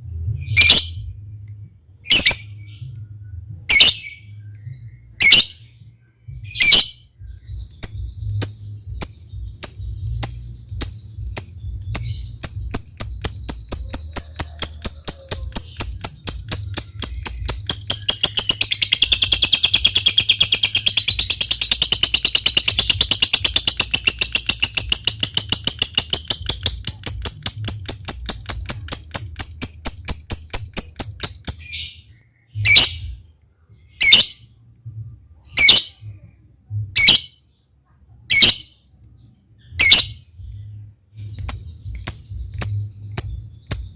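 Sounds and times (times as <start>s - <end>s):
low steady hum: 0.0s - 43.9s
lovebird chattering trill: 7.7s - 32.0s, 39.7s - 40.2s, 41.2s - 43.9s.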